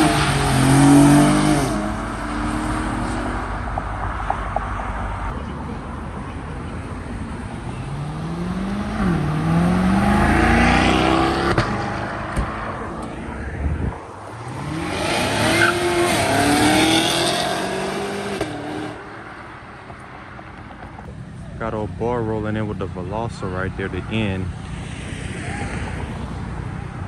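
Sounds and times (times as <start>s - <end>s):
car engine revving hard: 0.0s - 3.7s, 7.8s - 13.3s, 14.3s - 19.1s.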